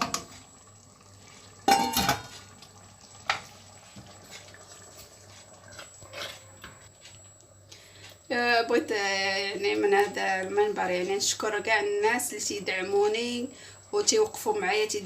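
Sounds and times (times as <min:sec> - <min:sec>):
metal cookware clanking: 0:01.6 - 0:02.4.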